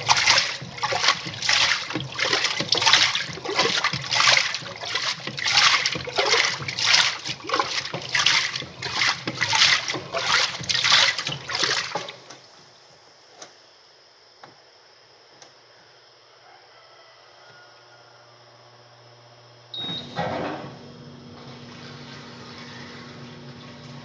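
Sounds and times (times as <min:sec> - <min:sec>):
washing machine water sloshing: 0:00.0 - 0:12.8, 0:19.8 - 0:24.0.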